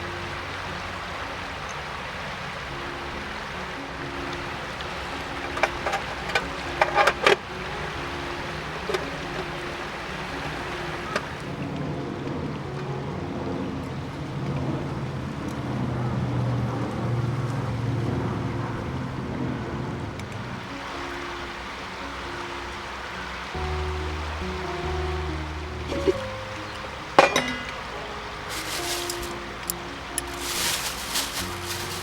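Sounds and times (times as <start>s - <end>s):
utensils clinking against cookware: 27.2s - 32.0s.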